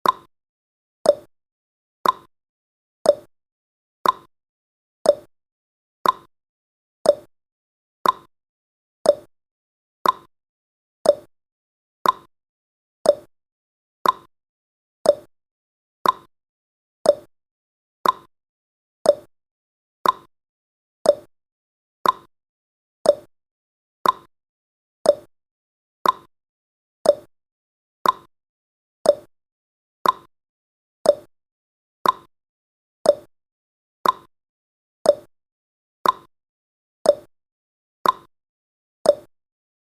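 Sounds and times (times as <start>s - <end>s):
timer ticking clicks: 0.0s - 0.3s, 1.0s - 1.3s, 2.0s - 2.3s, 3.0s - 3.3s, 4.0s - 4.3s, 5.0s - 5.3s, 6.0s - 6.3s, 7.0s - 7.3s, 8.0s - 8.3s, 9.0s - 9.3s, 10.0s - 10.3s, 11.0s - 11.3s, 12.0s - 12.3s, 13.0s - 13.3s, 14.0s - 14.3s, 15.0s - 15.3s, 16.0s - 16.3s, 17.0s - 17.3s, 18.0s - 18.3s, 19.0s - 19.3s, 20.0s - 20.3s, 21.0s - 21.3s, 22.0s - 22.3s, 23.0s - 23.3s, 24.0s - 24.3s, 25.0s - 25.3s, 26.0s - 26.3s, 27.0s - 27.3s, 28.0s - 28.3s, 29.0s - 29.3s, 30.0s - 30.3s, 31.0s - 31.3s, 32.0s - 32.3s, 33.0s - 33.3s, 34.0s - 34.3s, 35.0s - 35.3s, 36.0s - 36.3s, 37.0s - 37.3s, 38.0s - 38.3s, 39.0s - 39.3s.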